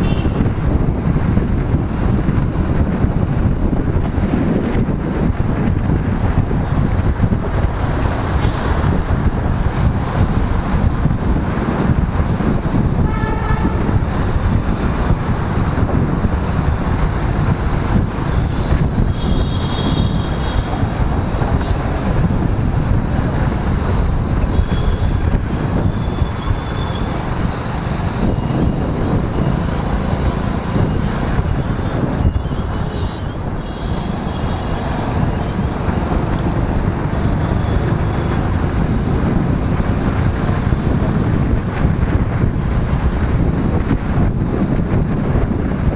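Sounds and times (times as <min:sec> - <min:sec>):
vehicle horn: 0:00.0 - 0:00.5, 0:13.0 - 0:14.1, 0:19.0 - 0:20.7, 0:24.5 - 0:25.2
motorcycle engine and wind rumble: 0:00.0 - 0:45.9.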